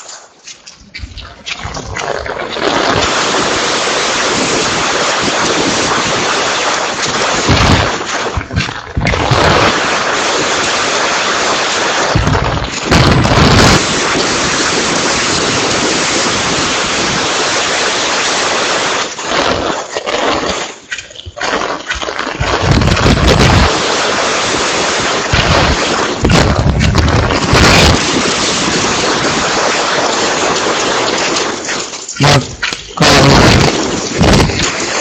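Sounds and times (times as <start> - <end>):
heavy rain hissing: 1.0 - 35.0
wind buffeting microphone: 12.1 - 17.6, 22.4 - 35.0.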